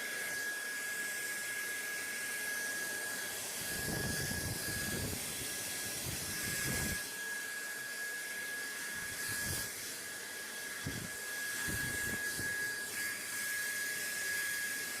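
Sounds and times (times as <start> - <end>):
constant high whine: 2.9 - 7.9.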